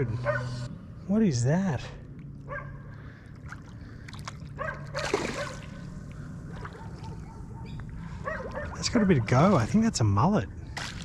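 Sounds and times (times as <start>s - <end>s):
low background hum: 0.0s - 11.0s
water splashing: 2.0s - 7.4s.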